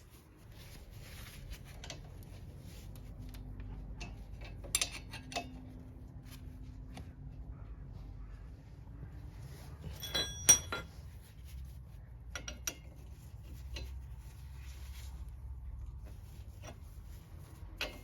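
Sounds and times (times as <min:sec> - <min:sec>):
steady low hum: 0:00.0 - 0:18.0
metal parts clinking: 0:04.0 - 0:05.6, 0:09.8 - 0:11.1.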